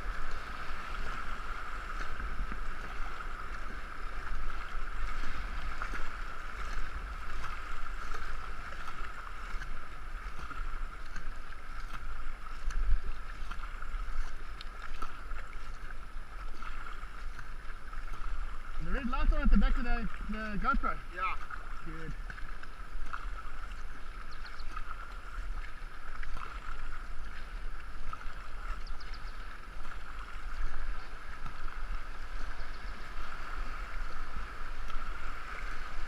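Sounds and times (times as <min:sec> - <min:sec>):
wind rumble on microphone: 0:00.0 - 0:20.6
canoe paddling: 0:00.0 - 0:36.0
water rushing: 0:00.0 - 0:36.0.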